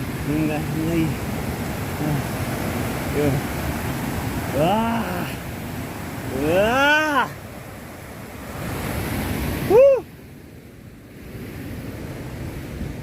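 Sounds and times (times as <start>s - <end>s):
waterfall rushing: 0.0s - 10.1s
person exclaiming: 4.5s - 5.4s, 6.3s - 7.4s, 9.6s - 10.1s.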